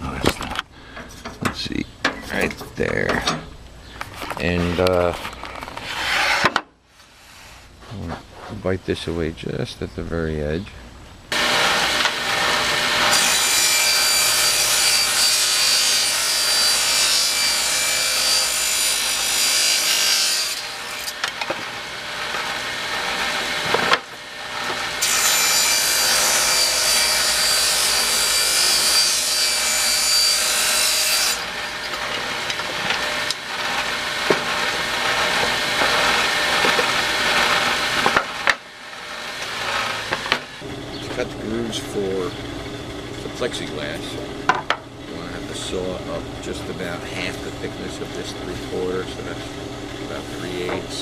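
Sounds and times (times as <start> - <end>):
power saw cutting wood: 5.8 - 6.6, 11.3 - 42.3, 45.1 - 51.0
saw motor running: 11.3 - 44.4.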